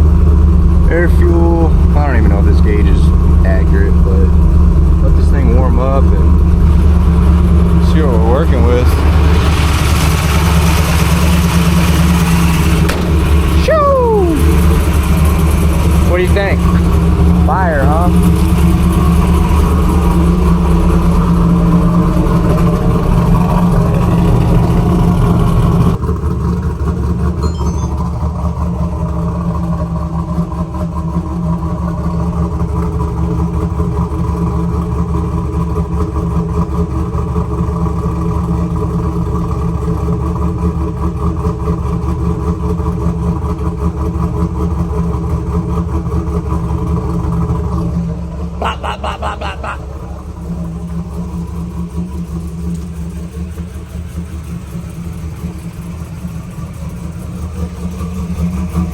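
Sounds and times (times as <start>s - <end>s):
car engine idling loud exhaust: 0.0s - 58.9s.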